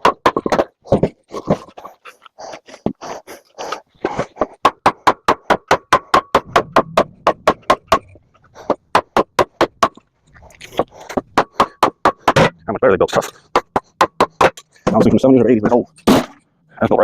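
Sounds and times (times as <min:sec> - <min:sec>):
hammer striking metal transformer: 0:06.4 - 0:08.4.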